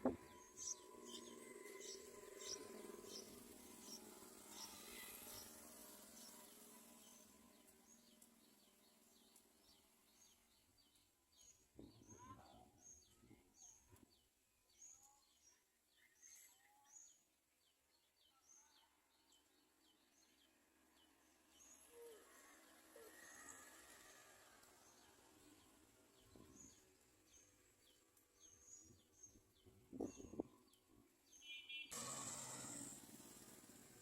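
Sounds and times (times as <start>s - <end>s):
small bird chirping: 0.0s - 17.3s, 24.8s - 32.3s.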